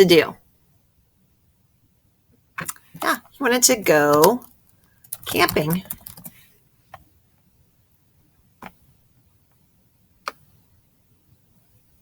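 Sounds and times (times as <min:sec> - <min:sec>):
computer mouse clicks: 0:05.0 - 0:07.0, 0:10.2 - 0:10.5.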